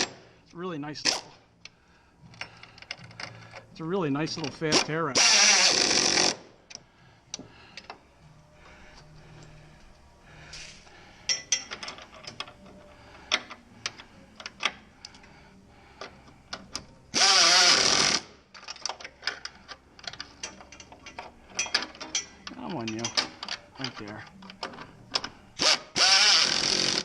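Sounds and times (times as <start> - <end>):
pneumatic air ratchet: 4.8 - 6.5, 16.5 - 22.4, 25.2 - 27.0.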